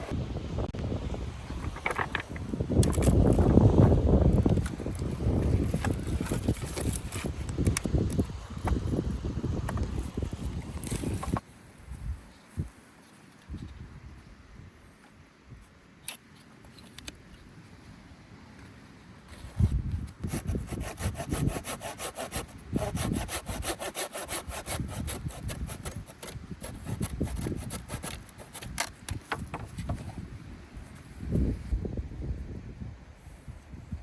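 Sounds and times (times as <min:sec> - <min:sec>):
hand saw cutting wood: 0:20.2 - 0:29.4.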